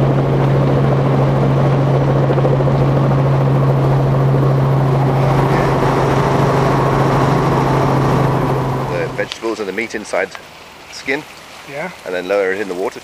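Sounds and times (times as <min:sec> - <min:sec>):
helicopter engine and rotors: 0:00.0 - 0:10.0.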